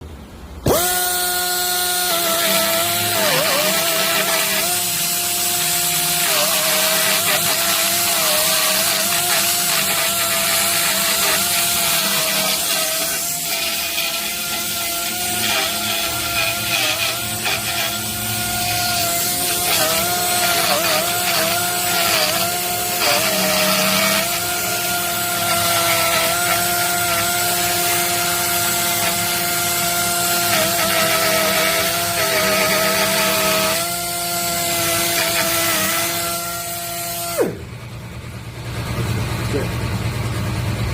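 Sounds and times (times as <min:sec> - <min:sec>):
pneumatic machine high whine: 0:00.6 - 0:40.8.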